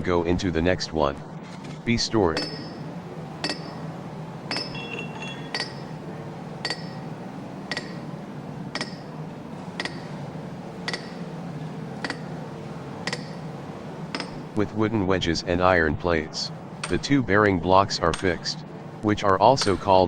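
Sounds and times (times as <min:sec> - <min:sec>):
hammer striking iron: 0:02.4 - 0:03.9, 0:04.5 - 0:14.6, 0:16.8 - 0:17.1, 0:19.6 - 0:20.0.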